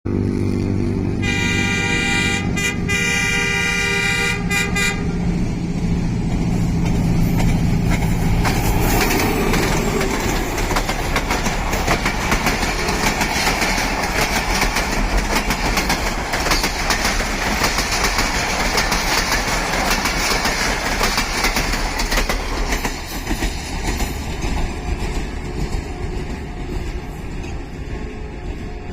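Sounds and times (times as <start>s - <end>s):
locomotive engine hum: 0.1s - 28.9s
train horn: 0.2s - 5.4s, 28.0s - 28.9s
train wheels clattering over rail joints: 6.0s - 28.9s.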